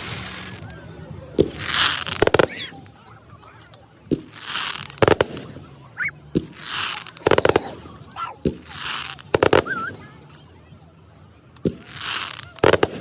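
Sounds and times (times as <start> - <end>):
fireworks bangs: 0.0 - 0.7, 1.4 - 2.9, 4.1 - 10.1, 11.6 - 13.0
fireworks hissing and crackling: 0.0 - 0.8, 1.4 - 3.0, 4.1 - 10.2, 11.6 - 13.0.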